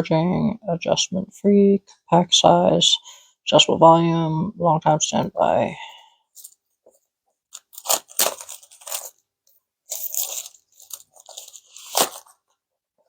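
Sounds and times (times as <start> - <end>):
packaging crinkling and rustling: 7.5 - 9.2, 9.9 - 12.6.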